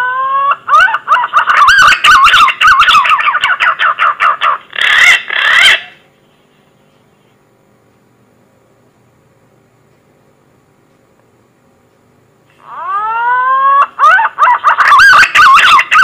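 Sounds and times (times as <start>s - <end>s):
pigeon whistling song: 0.0s - 4.0s, 12.7s - 16.0s.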